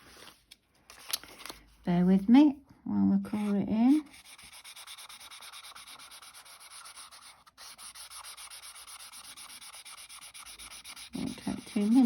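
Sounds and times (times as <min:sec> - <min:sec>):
marker pen scribbling on card: 0:03.3 - 0:12.0.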